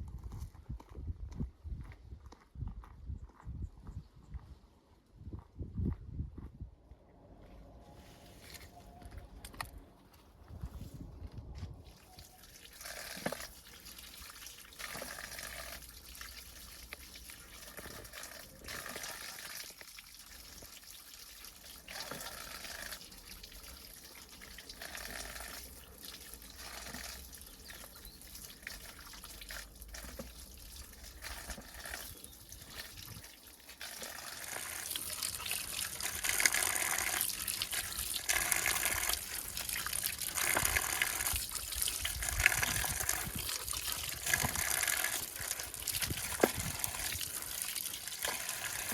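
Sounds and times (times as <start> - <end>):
running water: 11.8 - 48.9.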